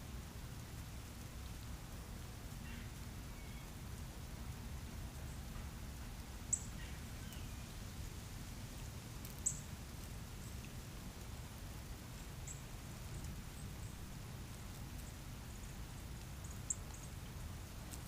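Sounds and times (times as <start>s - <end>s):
small birds chirping: 6.4s - 7.8s, 9.2s - 9.7s, 12.2s - 14.1s, 14.8s - 18.0s.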